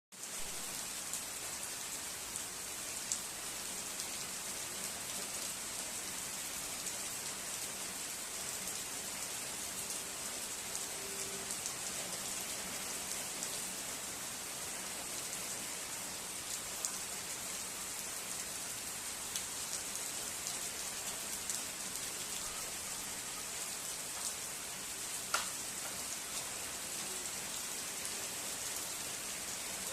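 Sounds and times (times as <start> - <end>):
steady rain falling: 0.1 - 29.9
rain drop ticks: 25.3 - 26.5.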